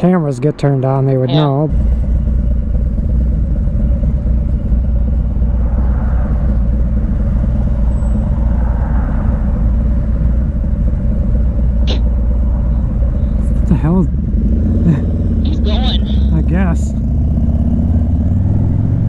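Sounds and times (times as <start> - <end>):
motorcycle engine drone: 0.0 - 19.0
road and wind noise: 0.0 - 19.0.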